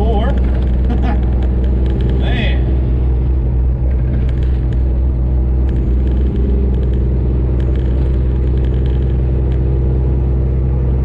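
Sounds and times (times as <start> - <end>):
road noise: 0.0 - 11.0
truck diesel engine droning: 0.0 - 11.0.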